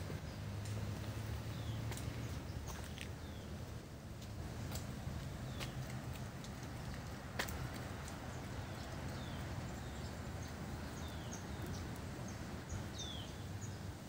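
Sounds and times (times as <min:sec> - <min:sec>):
steady low rumble: 0:00.0 - 0:13.8
bird chirping: 0:08.2 - 0:13.9.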